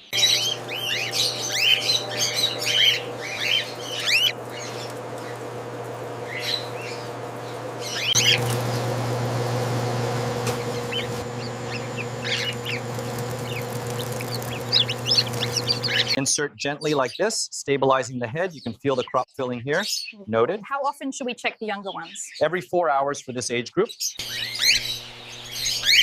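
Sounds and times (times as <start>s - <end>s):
cockatiels chirping and calling: 0.0s - 5.4s, 6.2s - 8.9s, 10.4s - 16.2s, 23.4s - 26.0s
steady low hum: 0.0s - 16.2s.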